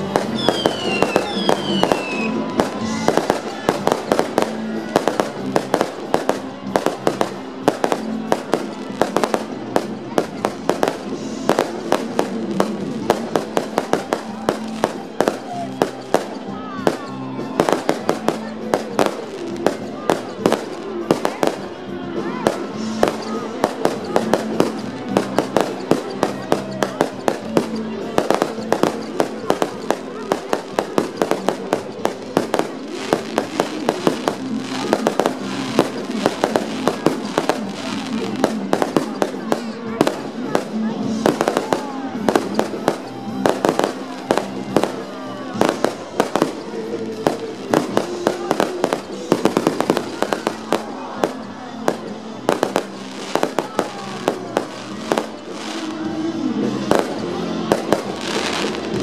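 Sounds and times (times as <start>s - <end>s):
fireworks bangs and cracks: 0.0s - 59.0s
music playing: 0.0s - 59.0s.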